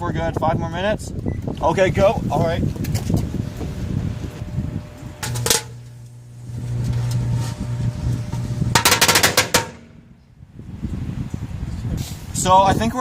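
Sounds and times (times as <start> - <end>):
microwave humming: 3.2 - 10.4
firecracker bangs: 8.3 - 10.1.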